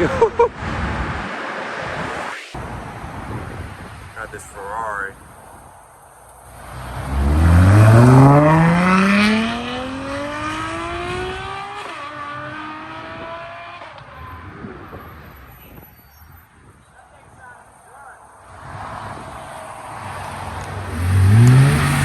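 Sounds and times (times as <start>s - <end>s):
sports car accelerating: 6.6s - 14.5s, 20.0s - 22.0s.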